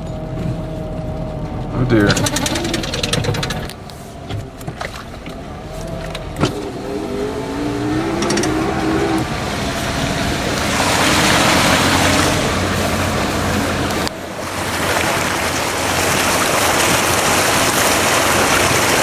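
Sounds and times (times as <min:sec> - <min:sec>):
vehicle engine revving: 0:00.0 - 0:19.0
rush of water spray: 0:06.6 - 0:19.0.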